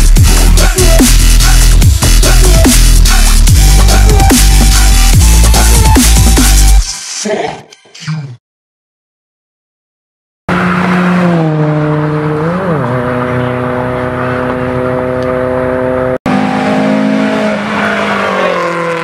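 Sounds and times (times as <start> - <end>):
car engine revving hard: 10.5 - 19.0.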